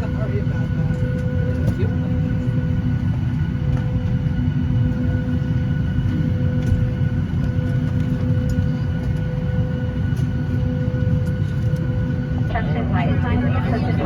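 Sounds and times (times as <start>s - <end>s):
airliner cabin rumble: 0.0s - 14.0s
constant multi-pitch hum: 4.5s - 14.0s.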